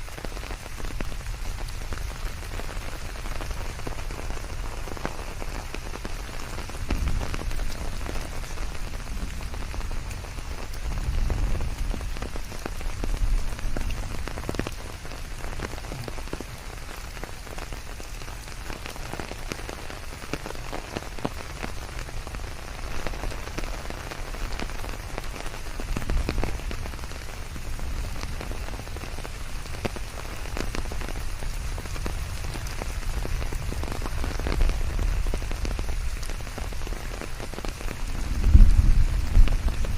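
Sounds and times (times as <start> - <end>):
rain falling on leaves: 0.0 - 39.9
low rumble: 38.2 - 39.9.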